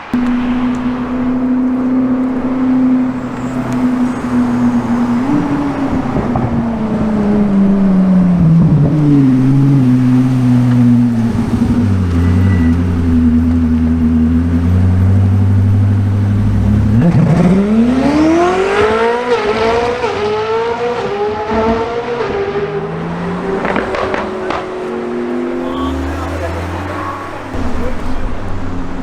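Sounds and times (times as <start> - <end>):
sports car engine accelerating: 0.0 - 29.0
exhaust pops: 25.5 - 29.0.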